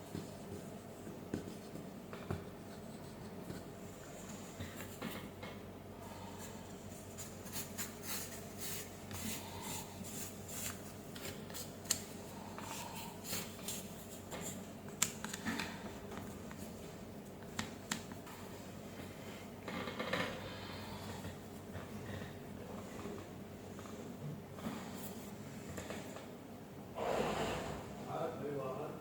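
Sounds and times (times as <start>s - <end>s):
parts rubbing and rustling: 6.8s - 12.0s.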